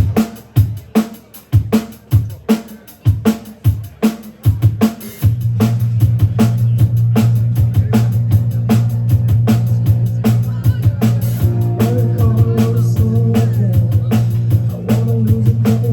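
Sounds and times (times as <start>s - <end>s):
drum kit beat: 0.0s - 15.9s
low bass line: 5.4s - 15.9s.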